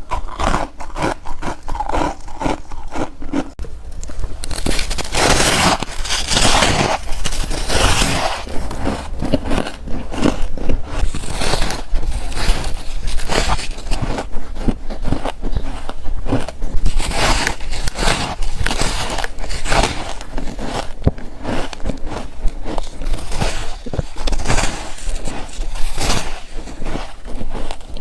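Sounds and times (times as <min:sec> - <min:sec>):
chewing crunchy frost: 0:00.0 - 0:28.0.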